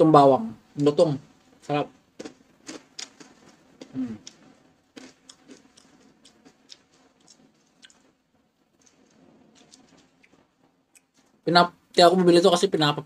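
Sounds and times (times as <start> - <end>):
crispy chips crunching: 1.6 - 8.2, 8.8 - 11.2.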